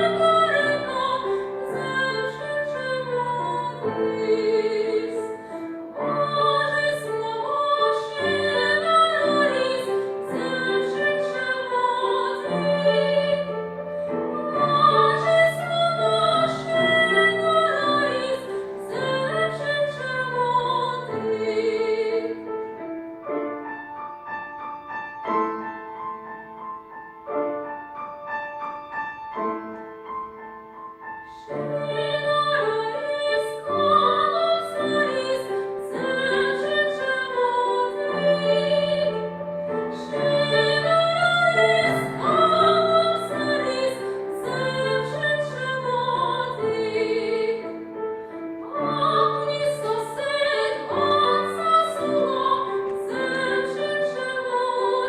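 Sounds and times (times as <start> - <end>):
woman singing operatically: 0.0 - 5.3, 6.0 - 13.5, 14.3 - 22.4, 31.5 - 39.2, 39.9 - 47.6, 48.6 - 55.0
piano accompaniment: 0.0 - 55.0.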